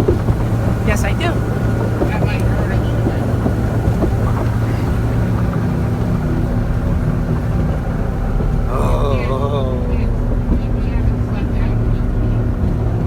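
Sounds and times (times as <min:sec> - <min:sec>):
boat engine humming: 0:00.0 - 0:13.0
higher hum tone: 0:08.2 - 0:11.3.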